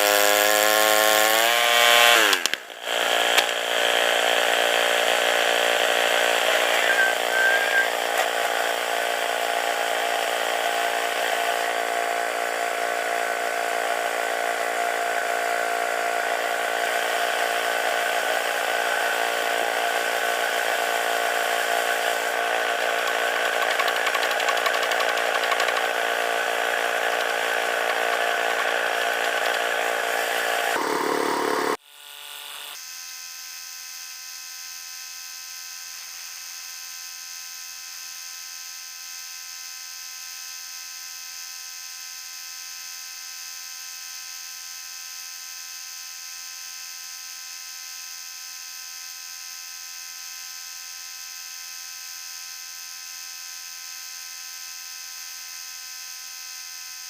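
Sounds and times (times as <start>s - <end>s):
small gas engine running at high revs: 0.0s - 34.8s.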